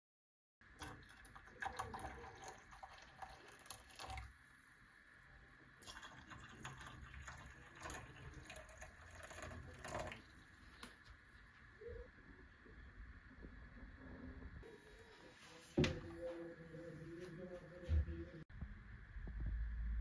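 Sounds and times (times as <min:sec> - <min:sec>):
water running at a sink: 0:00.7 - 0:04.6, 0:05.8 - 0:11.1
water drips: 0:00.8 - 0:04.3, 0:05.8 - 0:11.1.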